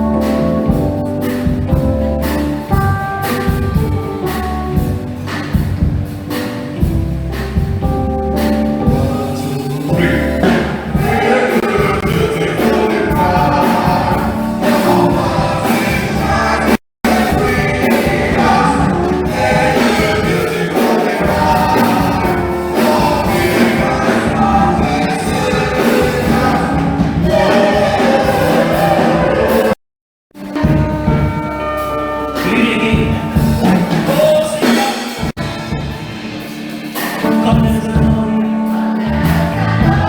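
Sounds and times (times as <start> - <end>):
instrumental accompaniment: 0.0 - 29.8, 30.4 - 40.0
choir singing a carol: 8.9 - 29.8, 37.4 - 40.0.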